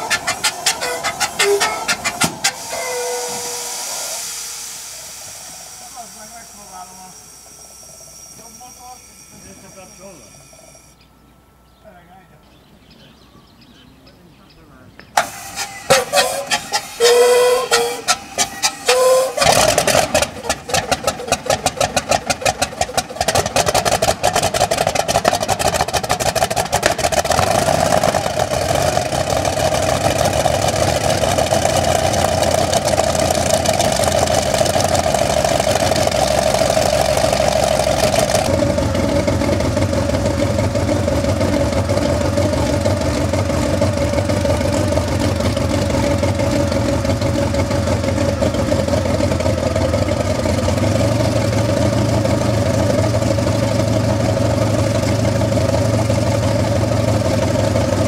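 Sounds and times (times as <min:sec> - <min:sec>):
radial engine starting and running: 0:00.0 - 0:11.6, 0:13.8 - 0:58.0.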